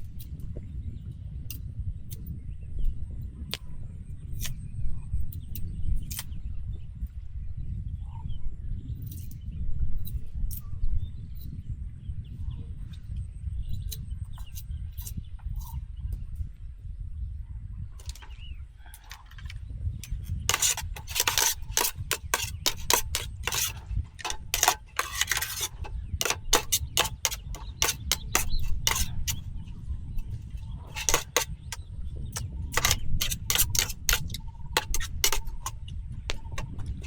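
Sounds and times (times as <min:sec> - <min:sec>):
hard objects clicking and clattering: 0:19.0 - 0:29.4, 0:30.2 - 0:37.0.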